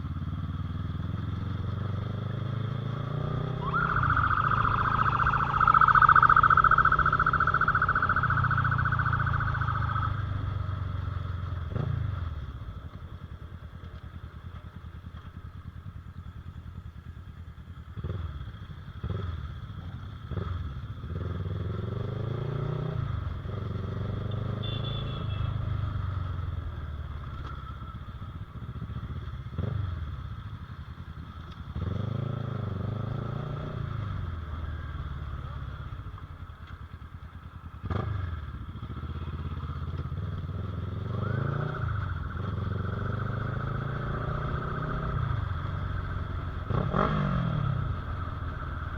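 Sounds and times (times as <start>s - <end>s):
motorcycle engine accelerating: 0.0s - 25.0s, 25.7s - 48.9s
loud high-pitched tone: 3.2s - 10.4s.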